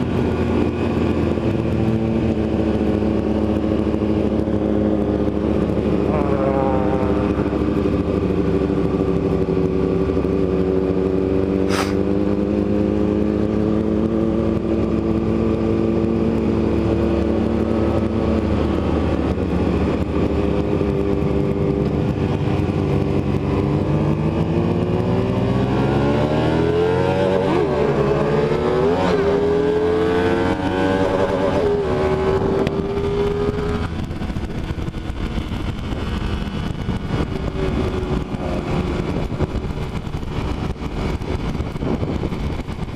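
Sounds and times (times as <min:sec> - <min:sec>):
motorcycle engine running: 0:00.0 - 0:42.9
sharp click: 0:11.7 - 0:12.0.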